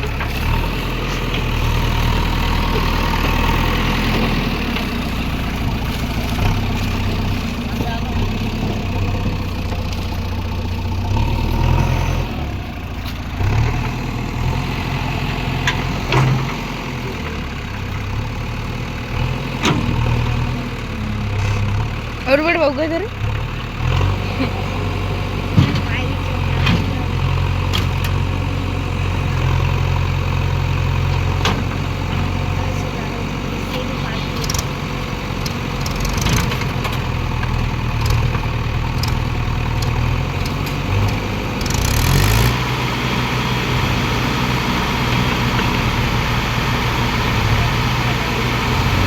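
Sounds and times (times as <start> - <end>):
heavy diesel engine running: 0.0 - 49.0.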